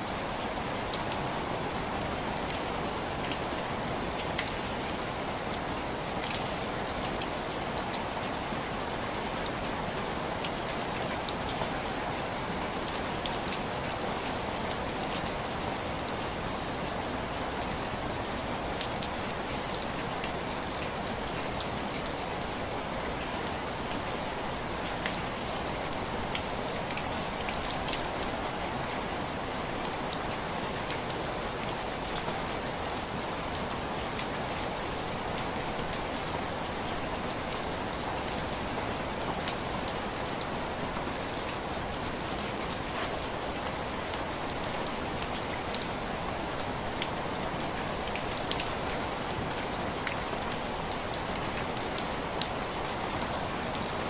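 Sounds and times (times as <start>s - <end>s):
rain pattering on window glass: 17.0s - 54.0s.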